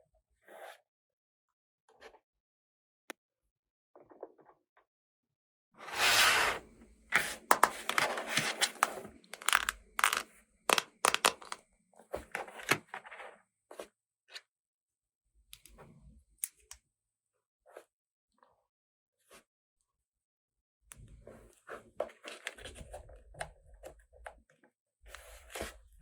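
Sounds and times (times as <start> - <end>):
plastic pieces clicking: 7.5 - 11.6
packaging tearing: 7.9 - 11.6.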